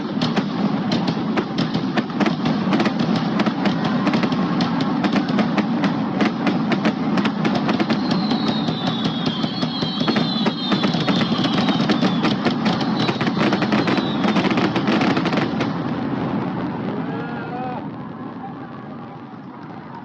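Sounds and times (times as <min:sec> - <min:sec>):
fireworks popping and banging: 0:00.0 - 0:20.0
high whistling tones: 0:07.8 - 0:14.8.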